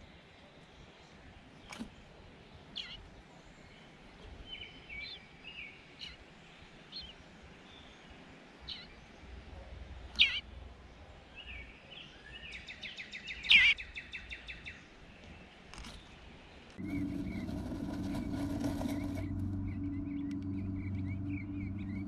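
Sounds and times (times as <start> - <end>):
bluebirds chirping: 0.8 - 22.0
sharp downslurred bird calls: 10.1 - 10.4.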